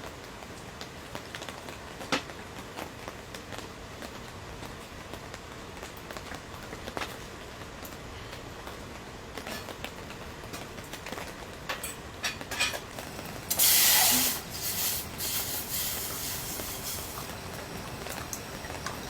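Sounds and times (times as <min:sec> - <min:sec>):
steady background noise: 0:00.1 - 0:19.0
soft wavering hiss: 0:12.9 - 0:19.0
sharp hiss: 0:13.0 - 0:19.0.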